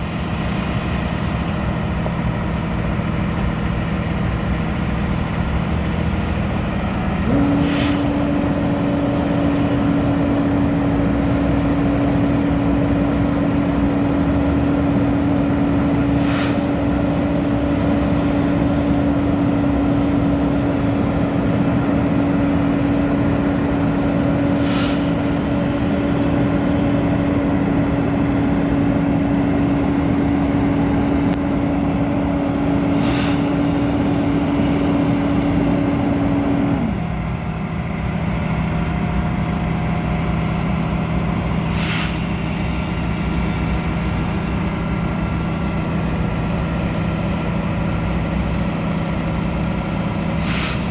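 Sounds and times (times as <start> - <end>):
diesel truck engine running: 0.0 - 50.9
steady whine: 0.0 - 50.9
brief hiss: 41.7 - 44.4.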